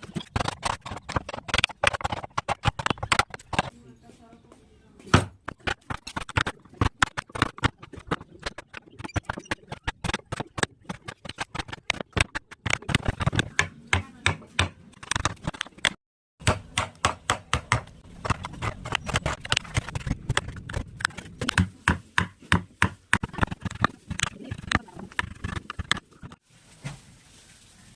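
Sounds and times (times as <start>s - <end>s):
mallet tapping chisel into wood: 16.4s - 17.9s.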